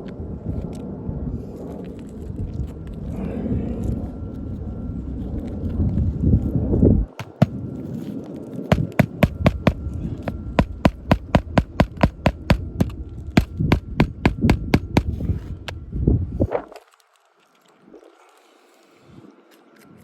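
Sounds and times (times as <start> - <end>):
low rumble: 0.2 - 16.7
hammer strikes on shingle roof: 7.2 - 7.6, 8.7 - 15.2.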